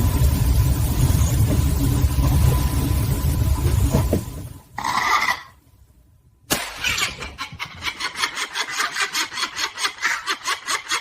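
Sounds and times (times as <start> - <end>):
rhythmic cackling laugh: 6.9 - 11.0.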